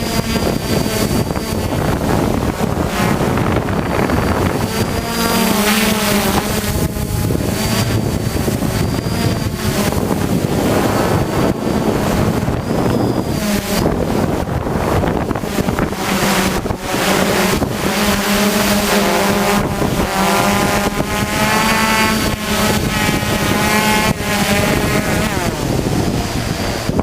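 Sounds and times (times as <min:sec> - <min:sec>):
drone motors and propellers: 0:00.0 - 0:27.0
wind noise on microphone: 0:00.0 - 0:27.0.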